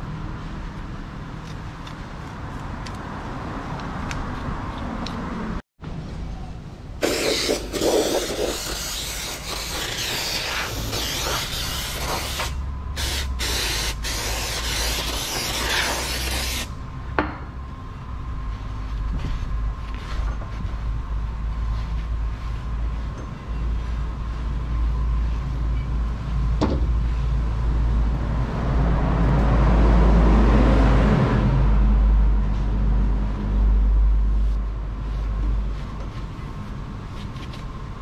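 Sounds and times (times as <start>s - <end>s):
pressurised spray hissing: 7.0s - 16.7s.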